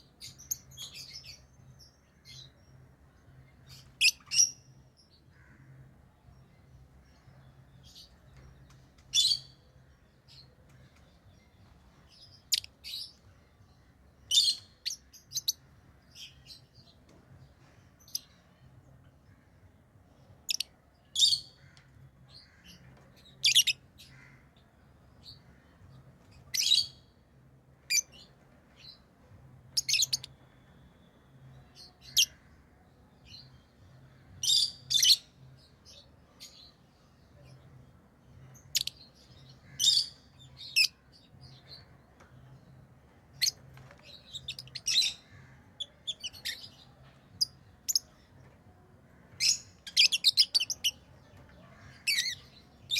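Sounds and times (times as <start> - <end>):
lovebirds chirping: 27.8 - 52.9.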